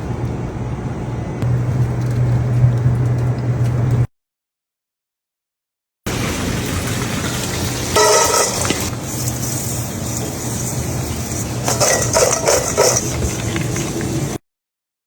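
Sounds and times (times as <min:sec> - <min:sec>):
frying sizzle: 0:06.1 - 0:14.4
metal pans and utensils clattering: 0:07.2 - 0:08.9, 0:11.6 - 0:14.0.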